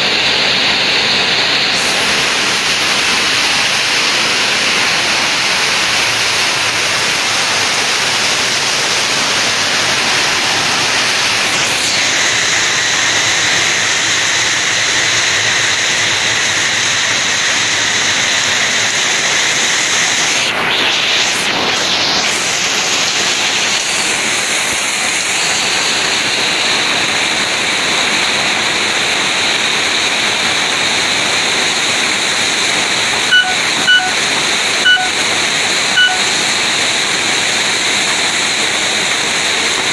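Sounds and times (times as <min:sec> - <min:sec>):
rain and hail in strong wind: 0:00.0 - 0:39.9
short electronic beeps: 0:33.3 - 0:36.4.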